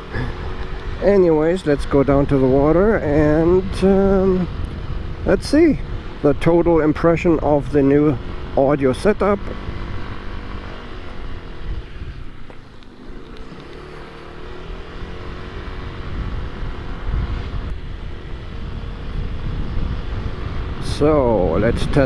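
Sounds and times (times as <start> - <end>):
wind noise rumble: 0.0 - 13.6, 14.3 - 22.0
scooter engine running: 0.0 - 22.0.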